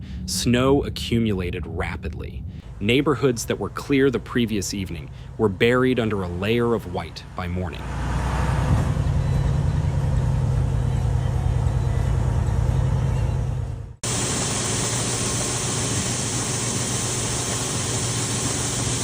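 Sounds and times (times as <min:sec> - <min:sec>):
vehicle engine rumbling: 0:00.0 - 0:14.2
low hum: 0:00.0 - 0:19.0
steady hiss: 0:14.0 - 0:19.0.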